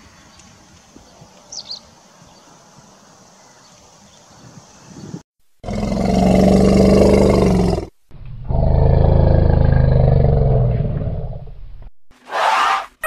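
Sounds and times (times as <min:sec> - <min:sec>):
elephant roaring calls: 0:05.6 - 0:11.4.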